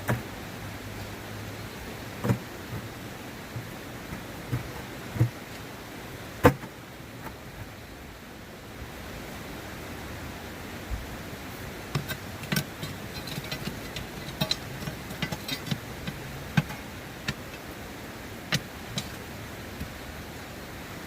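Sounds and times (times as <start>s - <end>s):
river water rushing: 0.0s - 21.0s
metal tool clinking on stones: 11.9s - 17.7s, 18.5s - 19.3s.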